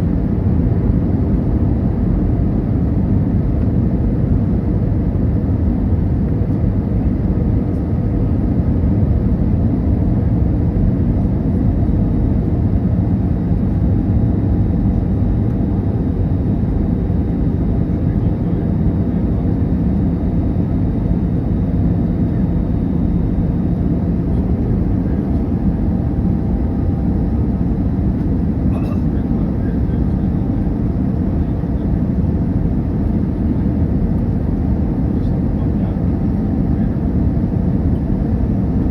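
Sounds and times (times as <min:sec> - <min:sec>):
aircraft engine hum: 0:00.0 - 0:38.9
airflow rushing in cabin: 0:11.0 - 0:38.9.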